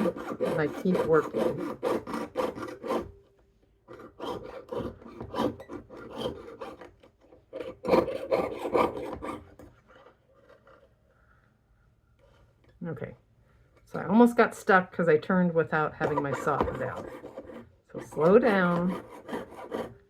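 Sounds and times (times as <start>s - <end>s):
saw blade cutting metal sheet: 0.0s - 3.1s, 3.9s - 6.9s, 7.6s - 9.6s, 16.0s - 20.0s.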